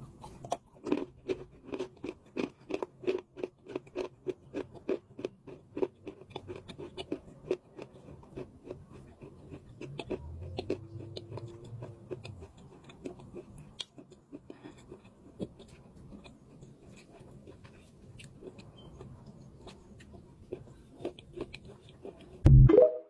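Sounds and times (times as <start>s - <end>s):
chalk being chewed: 0.0s - 22.4s
low hum: 22.4s - 23.0s.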